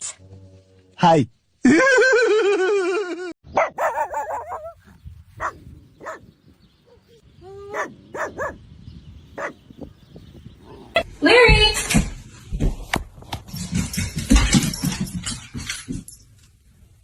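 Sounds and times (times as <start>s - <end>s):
dog barking and yipping: 3.5s - 4.8s, 5.4s - 6.2s, 7.7s - 8.6s, 9.4s - 9.6s
dog howling: 3.8s - 4.8s.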